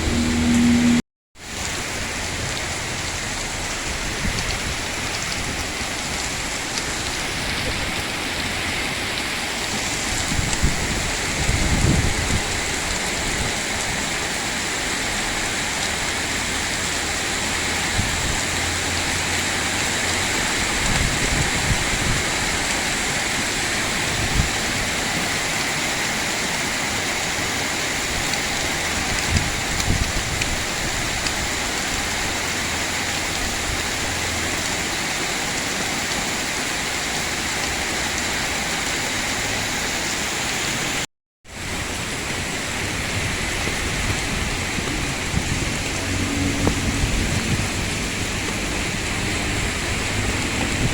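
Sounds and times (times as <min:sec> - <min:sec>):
heavy rain pouring: 0:00.0 - 0:50.9
wind gusts thumping microphone: 0:02.0 - 0:14.4, 0:17.4 - 0:26.2, 0:27.3 - 0:34.9, 0:40.7 - 0:50.9.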